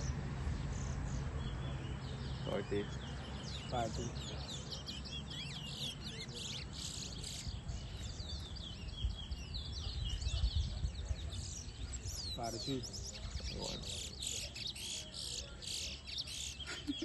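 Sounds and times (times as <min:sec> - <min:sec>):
finch singing whistled twitters: 0:00.9 - 0:17.0.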